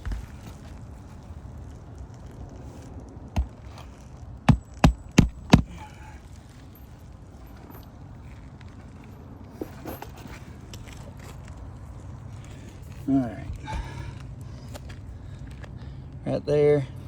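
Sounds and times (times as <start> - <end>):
low steady background noise: 0.0 - 17.0
sharp knocks: 4.5 - 5.8.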